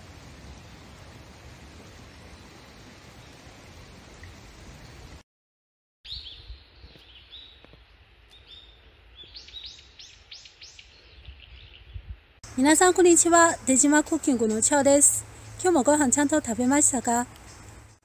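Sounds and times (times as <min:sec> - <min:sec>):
songbirds chirping: 0:06.1 - 0:18.0.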